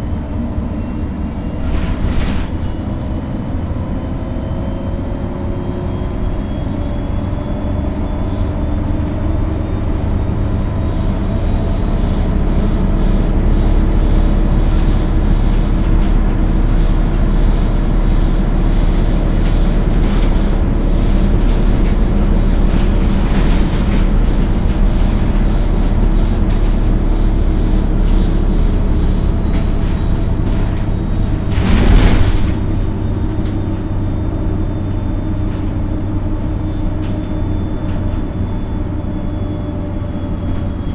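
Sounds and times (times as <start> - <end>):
bus diesel engine humming: 0.0 - 40.9
loud burst of noise: 10.5 - 33.2.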